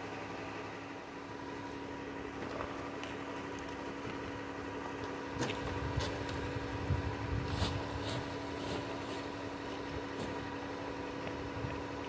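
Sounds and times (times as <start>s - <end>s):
van engine idling: 0.0s - 12.0s
snow brushing swishes: 7.4s - 9.4s.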